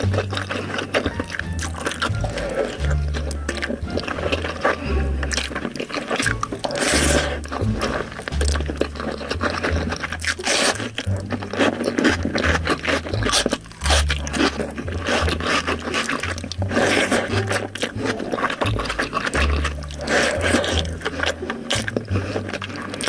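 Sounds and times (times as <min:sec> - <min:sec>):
chewing and wet smacking: 0:00.0 - 0:23.0.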